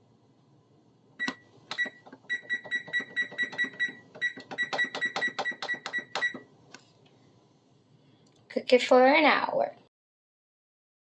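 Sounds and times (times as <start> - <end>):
oven keypad beeping: 1.2 - 6.5.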